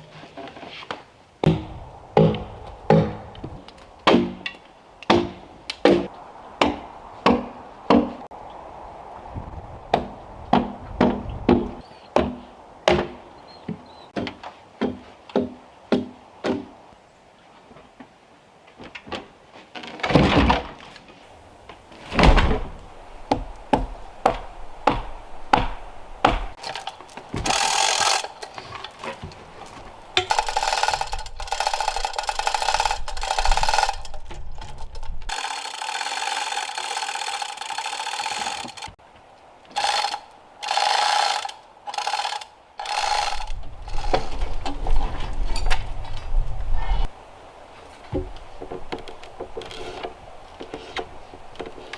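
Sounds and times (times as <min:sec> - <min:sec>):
quick wooden knocks: 0:21.4 - 0:34.4
heavy thuds on wood: 0:21.6 - 0:28.2
rasping strokes on wood: 0:22.8 - 0:32.8.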